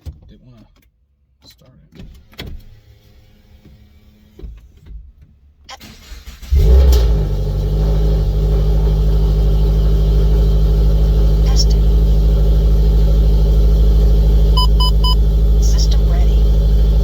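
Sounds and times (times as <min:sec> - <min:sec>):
engine cranking: 0:05.7 - 0:17.0
car engine idling: 0:05.8 - 0:17.0.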